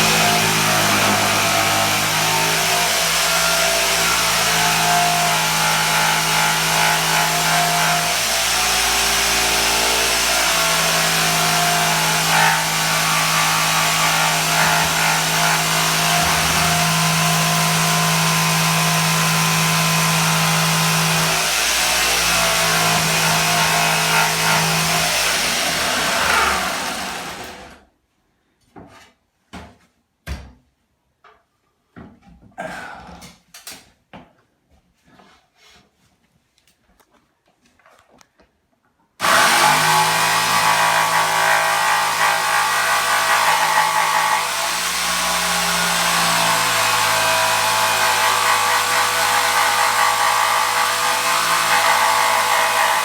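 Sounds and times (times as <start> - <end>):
electric jigsaw cutting wood: 0.0 - 27.8, 39.2 - 53.0.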